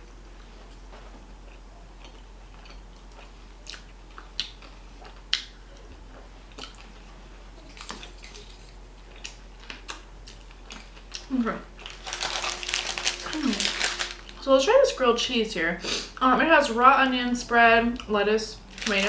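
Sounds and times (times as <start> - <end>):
person biting and chewing food: 1.4 - 14.4.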